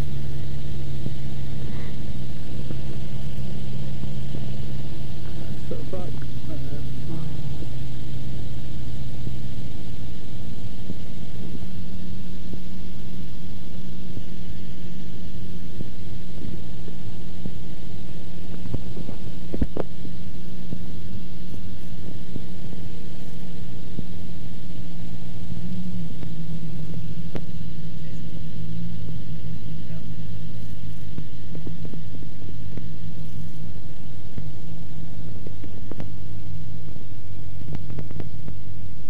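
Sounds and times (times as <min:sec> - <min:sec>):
aircraft engine and propeller droning: 0:00.0 - 0:39.0.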